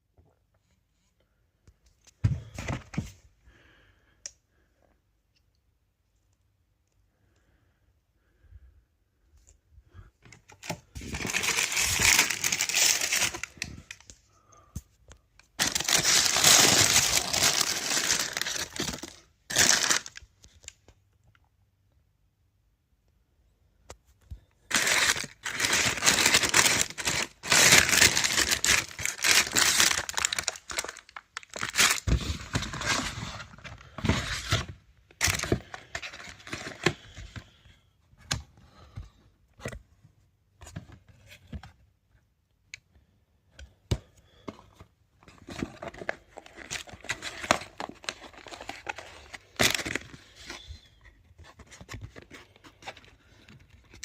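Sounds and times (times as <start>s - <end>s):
paper packaging rustling and tearing: 10.6s - 14.2s, 15.6s - 20.2s, 24.7s - 37.1s, 45.4s - 54.0s.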